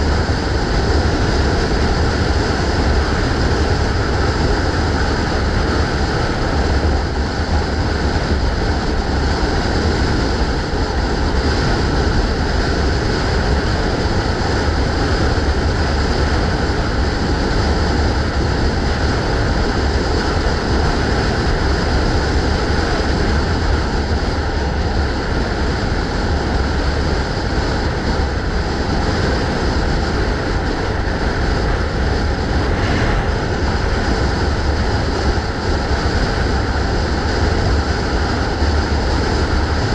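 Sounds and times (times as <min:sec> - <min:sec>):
low rumble: 0:00.0 - 0:39.9
road noise: 0:00.0 - 0:39.9
wind rush on microphone: 0:00.0 - 0:39.9.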